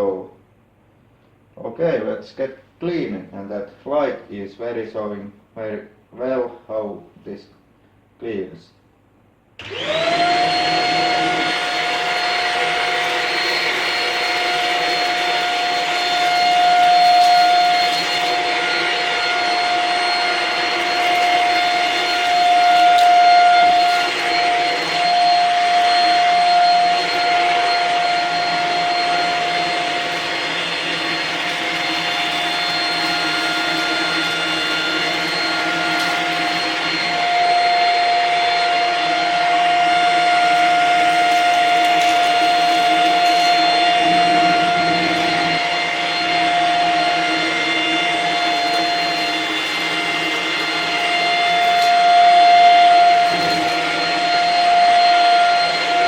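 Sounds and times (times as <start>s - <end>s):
vacuum cleaner motor whine: 9.6s - 56.0s.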